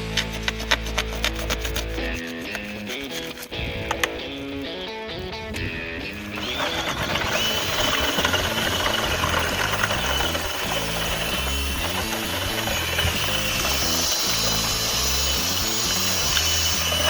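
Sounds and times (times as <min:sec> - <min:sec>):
background music: 0:00.0 - 0:10.6
machine motor whining: 0:05.6 - 0:17.0.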